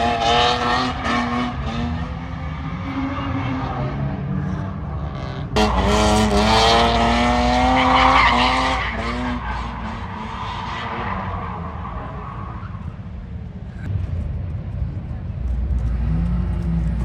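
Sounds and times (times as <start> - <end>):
car engine revving: 0.0 - 12.6
tires skidding and squealing: 0.0 - 13.9.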